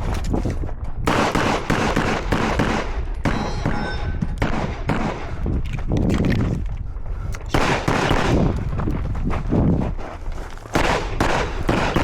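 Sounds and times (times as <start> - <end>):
rapid gunfire: 1.1 - 3.8, 4.4 - 5.4, 7.5 - 8.6, 10.8 - 12.0.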